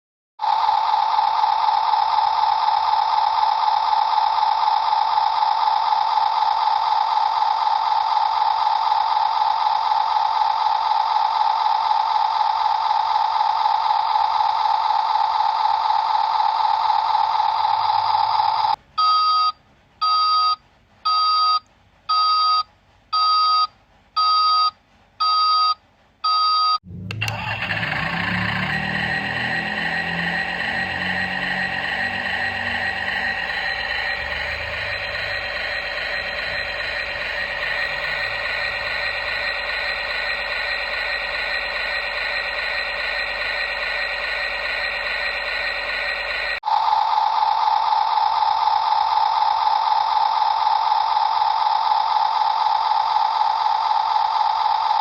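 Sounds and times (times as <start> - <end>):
steady electronic tone: 26.8 - 46.6
electronic beeps: 28.2 - 46.6.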